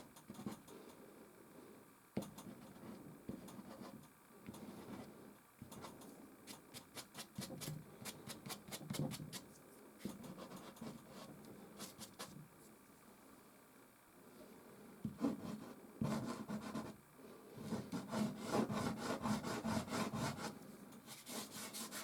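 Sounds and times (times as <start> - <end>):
pastel scratching on canvas: 10.0 - 12.4, 17.6 - 22.0.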